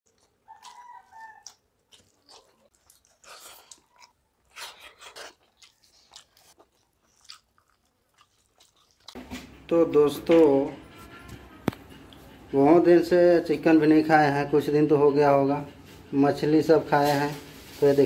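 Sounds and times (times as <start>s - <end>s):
wet chewing and smacking: 0.1s - 9.6s.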